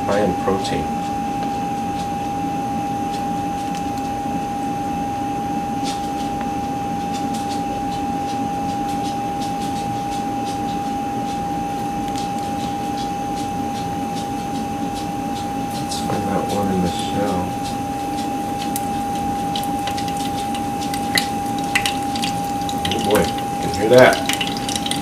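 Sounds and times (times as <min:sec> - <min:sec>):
food sizzling in hot oil: 0:18.6 - 0:25.0.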